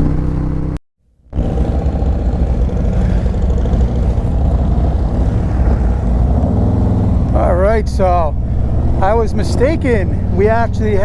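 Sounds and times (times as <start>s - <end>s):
motorcycle engine pulsing: 0.0s - 11.0s.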